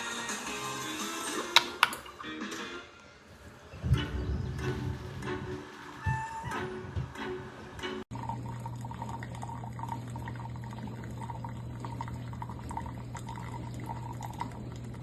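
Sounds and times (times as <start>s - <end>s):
coffee pouring and gurgling: 8.1s - 15.0s
coffee maker humming: 8.2s - 15.0s.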